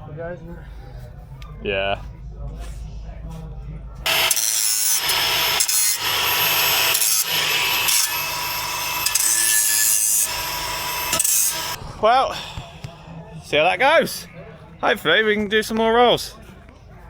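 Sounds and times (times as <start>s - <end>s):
angle grinder grinding metal: 4.1s - 11.8s.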